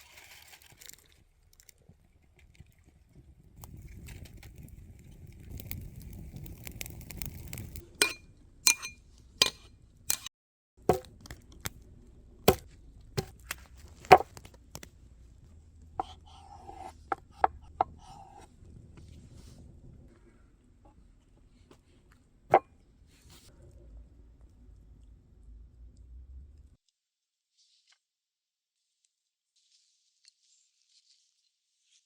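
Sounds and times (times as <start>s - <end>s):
cookware and utensils clinking: 7.8s - 10.3s
low rumble: 23.5s - 26.8s.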